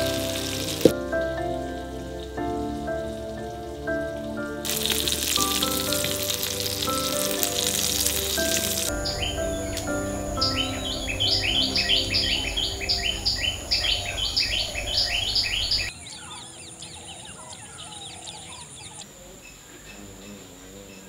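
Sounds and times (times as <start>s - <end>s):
soft held musical notes: 0.0s - 15.9s
faint scattered bird chirps: 8.9s - 21.0s
rapid repeated bird chirps: 9.0s - 21.0s.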